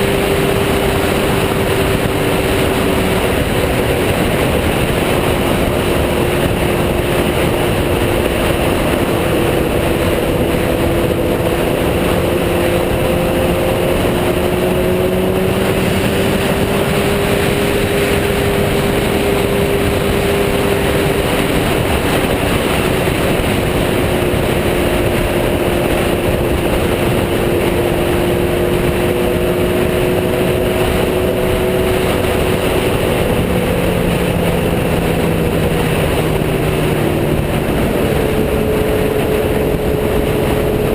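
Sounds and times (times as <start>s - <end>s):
motorcycle engine cruising: 0.0s - 40.9s
wind and road noise: 0.0s - 40.9s.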